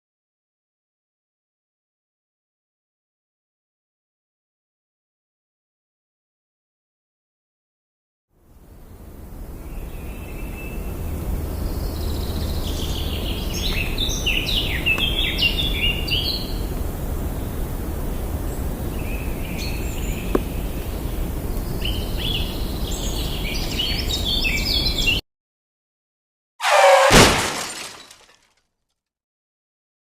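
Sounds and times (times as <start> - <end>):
birds chirping: 8.6 - 25.2.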